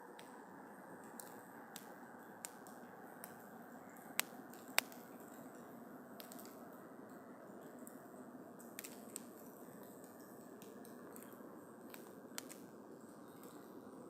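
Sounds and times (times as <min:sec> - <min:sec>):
steady low hiss: 0:00.0 - 0:14.0
campfire crackling and popping: 0:01.1 - 0:06.6, 0:08.6 - 0:12.8.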